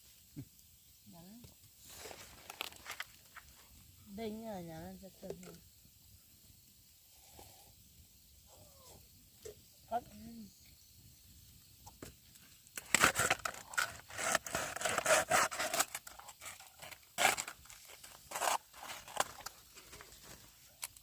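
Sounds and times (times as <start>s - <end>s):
dry rustling and tearing: 1.9s - 3.4s, 12.8s - 21.0s.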